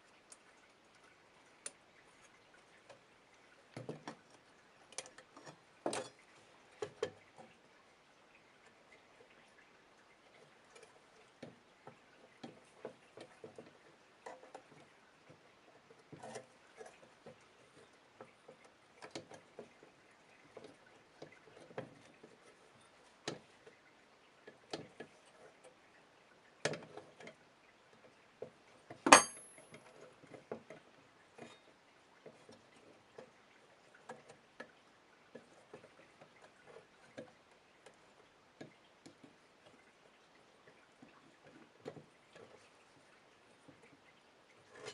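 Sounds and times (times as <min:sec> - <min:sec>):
metal parts and tools clicking: 0:29.1 - 0:29.6.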